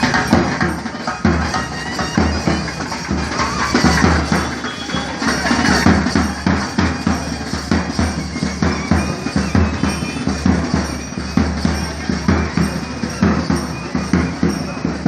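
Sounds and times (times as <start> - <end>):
droning reed wind instrument: 0.0 - 15.0
drums beating quick rhythm: 0.0 - 15.0.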